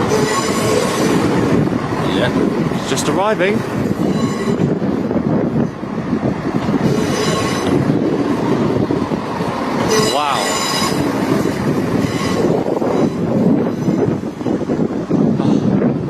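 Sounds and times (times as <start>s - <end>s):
wheel and brake squeals: 0.0s - 1.2s, 4.0s - 4.9s, 6.8s - 7.9s, 9.8s - 14.7s
train wheels rumbling on rails: 0.0s - 16.0s.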